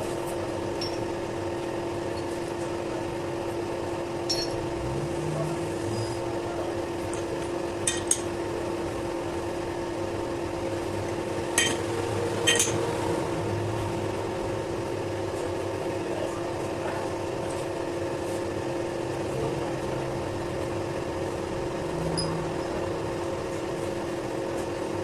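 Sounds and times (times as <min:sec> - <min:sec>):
metal clinking on metal: 0:00.7 - 0:01.1, 0:04.3 - 0:04.6, 0:07.8 - 0:08.3, 0:11.6 - 0:11.8, 0:12.4 - 0:12.8
machine motor hum: 0:17.3 - 0:25.0.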